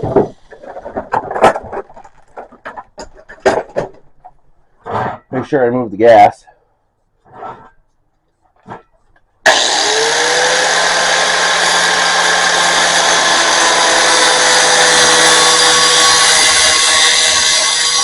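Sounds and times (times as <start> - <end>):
cutoff wheel cutting steel: 9.4 - 18.0.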